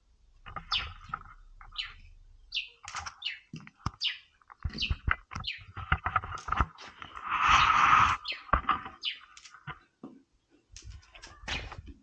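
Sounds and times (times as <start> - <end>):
bird short high chirps: 7.5 - 9.3.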